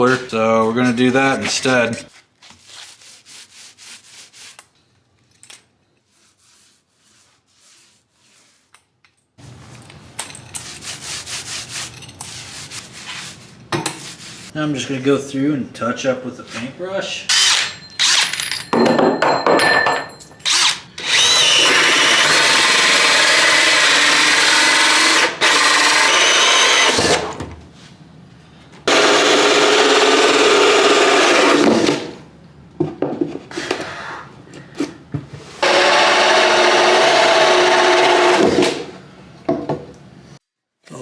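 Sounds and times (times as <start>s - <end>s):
power drill running: 20.4s - 27.4s, 28.9s - 32.2s, 35.6s - 39.0s.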